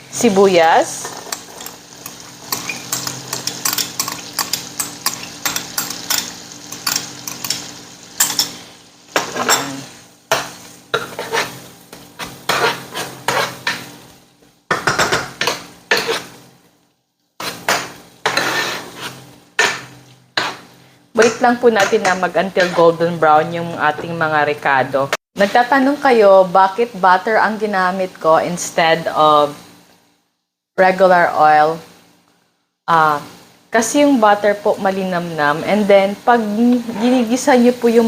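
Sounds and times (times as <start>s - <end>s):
food sizzling: 0.0s - 24.3s, 32.9s - 38.0s
utensil scraping a frying pan: 0.9s - 13.9s, 15.4s - 16.4s, 17.4s - 20.8s.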